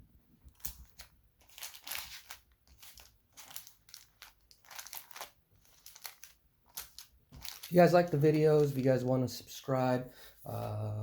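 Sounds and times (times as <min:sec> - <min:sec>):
foil wrappers crinkling: 0:00.5 - 0:09.0.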